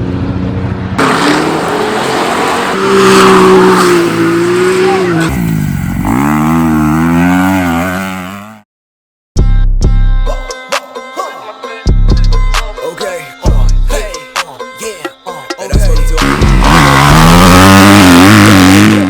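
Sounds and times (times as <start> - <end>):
dirt bike engine revving: 1.0 - 8.6, 15.8 - 19.0
music: 9.4 - 17.2.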